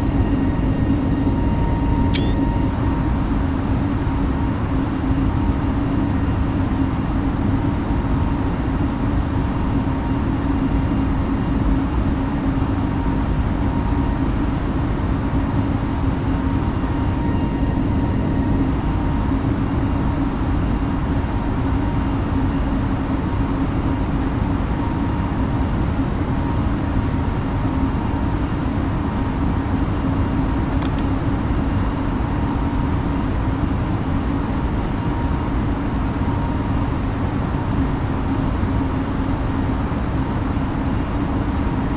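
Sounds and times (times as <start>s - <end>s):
low hum: 0.0s - 3.4s, 16.6s - 19.4s
airliner cabin engine drone: 0.0s - 30.1s, 30.7s - 31.8s.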